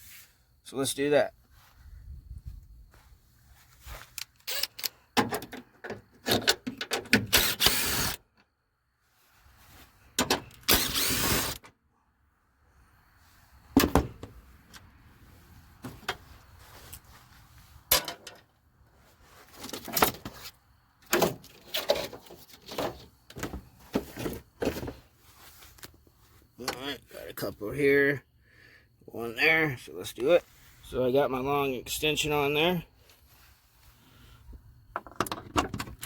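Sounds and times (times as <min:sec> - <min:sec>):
hand tools clanking on metal: 0:17.9 - 0:18.4.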